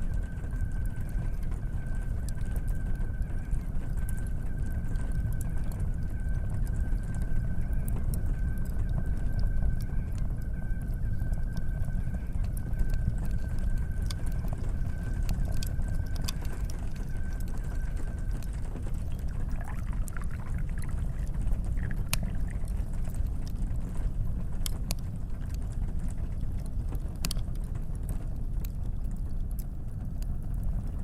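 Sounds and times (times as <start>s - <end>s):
tea kettle whistling: 0.0s - 22.6s
wood fire crackling and popping: 0.0s - 31.0s.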